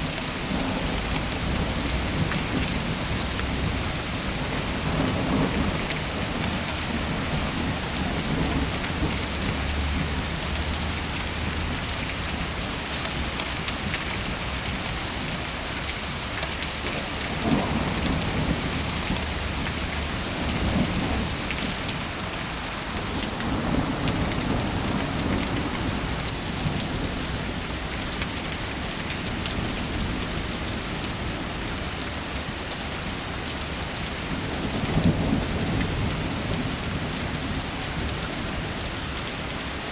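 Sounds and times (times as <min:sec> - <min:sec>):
heavy rain falling: 0:00.0 - 0:39.9
low thunder rumbling: 0:00.4 - 0:12.6, 0:17.3 - 0:27.6.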